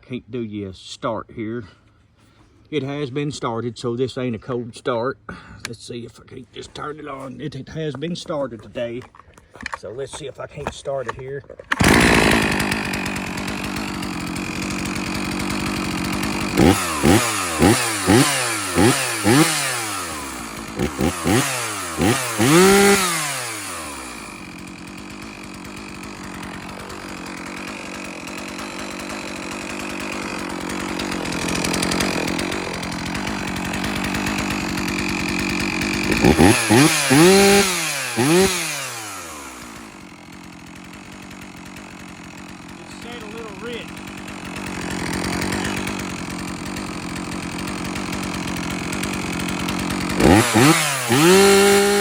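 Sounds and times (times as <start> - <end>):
chainsaw revving: 11.7 - 52.0.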